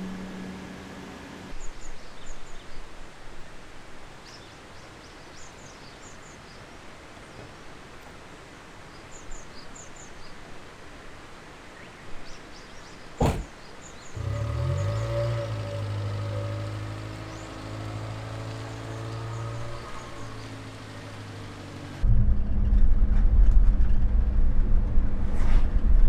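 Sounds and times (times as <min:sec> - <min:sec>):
small birds chirping: 0:11.7 - 0:22.0.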